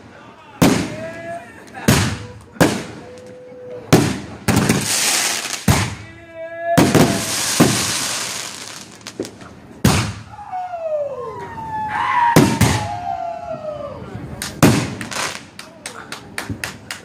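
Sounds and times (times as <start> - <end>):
firework bangs: 0.0 - 6.1, 6.7 - 10.3, 12.2 - 13.0, 14.4 - 15.7
firework whistles: 11.4 - 13.2.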